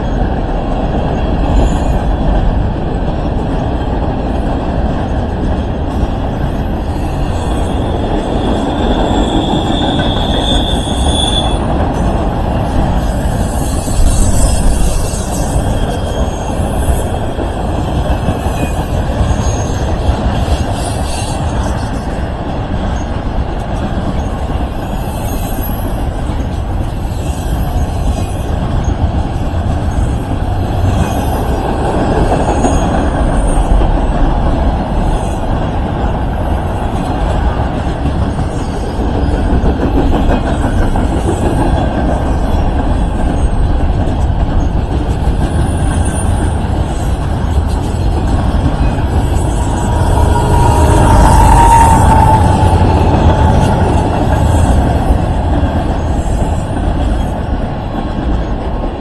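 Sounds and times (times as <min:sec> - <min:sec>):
train wheels rumbling on rail: 0:00.0 - 0:59.0
faint high wheel squeals: 0:07.0 - 0:11.7.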